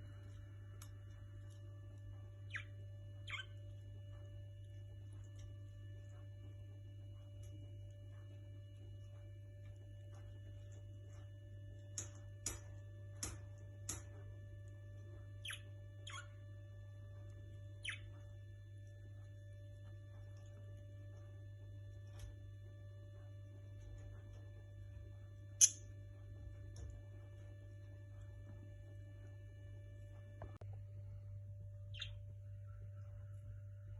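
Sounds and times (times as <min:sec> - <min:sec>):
electrical hum: 0:00.0 - 0:33.9
birds chirping: 0:02.2 - 0:03.8, 0:17.8 - 0:18.2, 0:31.8 - 0:33.3.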